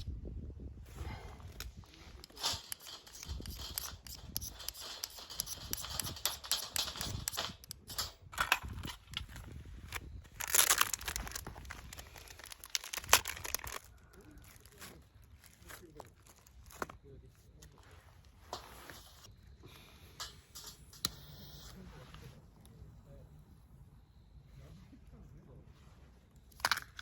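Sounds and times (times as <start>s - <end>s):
crinkling and rustling: 1.0s - 19.3s.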